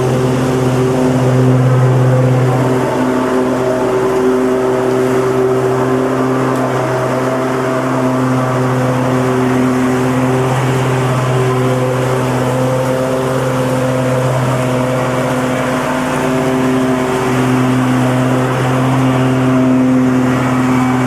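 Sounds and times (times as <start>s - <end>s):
lawnmower engine droning: 0.0s - 21.0s.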